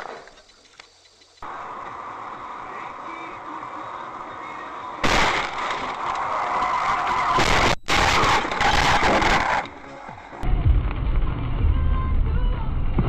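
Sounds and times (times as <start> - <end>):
loud rush of vehicle noise: 1.4 - 5.0
car road noise: 1.4 - 7.3.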